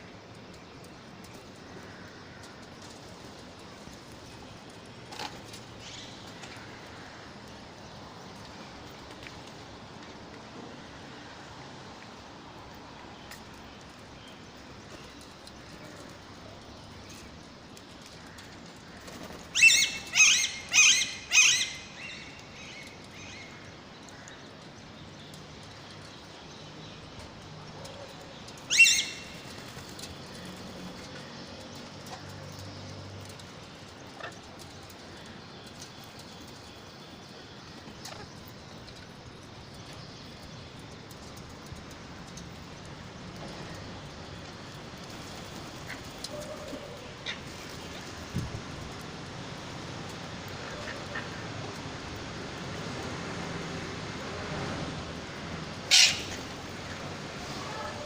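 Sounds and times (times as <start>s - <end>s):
steady low background noise: 0.0s - 58.0s
parrot screeching: 55.9s - 56.3s.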